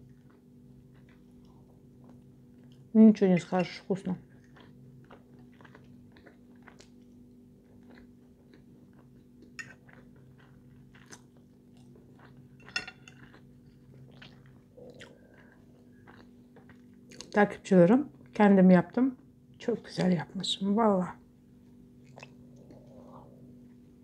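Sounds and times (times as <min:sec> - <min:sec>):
person chewing food: 0:00.0 - 0:02.9, 0:04.2 - 0:17.4, 0:22.0 - 0:24.0
faint steady hum: 0:00.0 - 0:24.0.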